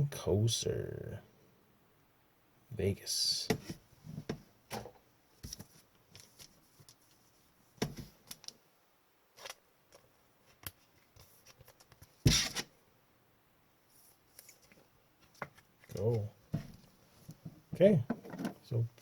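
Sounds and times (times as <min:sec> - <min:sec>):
cards and packaging handled: 0:09.4 - 0:12.6, 0:14.3 - 0:16.3.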